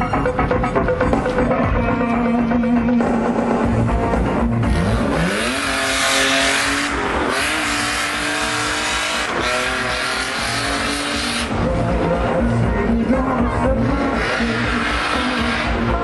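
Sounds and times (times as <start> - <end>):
loud music: 0.0 - 16.0
car engine revving hard: 4.6 - 11.7, 13.7 - 16.0.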